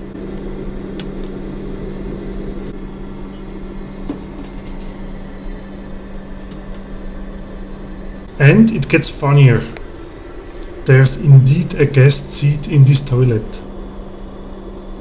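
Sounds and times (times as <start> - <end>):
airplane cabin air and engine rush: 8.3 - 13.6
constant hum: 8.3 - 13.6.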